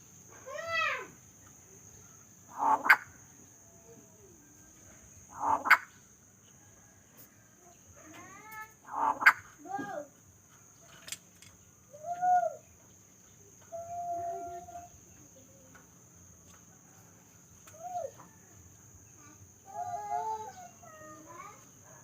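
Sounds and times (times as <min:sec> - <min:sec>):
steady high hiss: 0:00.0 - 0:07.7
cage bird calling: 0:02.0 - 0:03.8, 0:05.2 - 0:06.1, 0:08.1 - 0:09.8, 0:10.8 - 0:15.5, 0:17.6 - 0:18.5.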